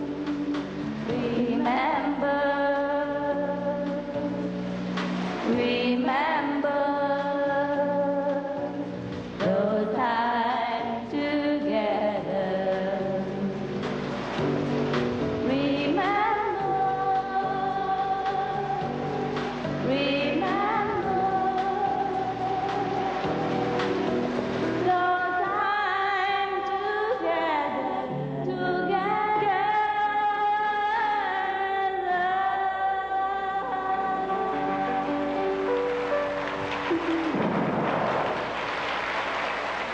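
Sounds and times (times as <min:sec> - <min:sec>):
person singing with vibrato: 0:00.0 - 0:04.6, 0:05.5 - 0:13.7, 0:15.5 - 0:23.6, 0:24.8 - 0:35.2
quiet musical accompaniment: 0:00.0 - 0:37.9.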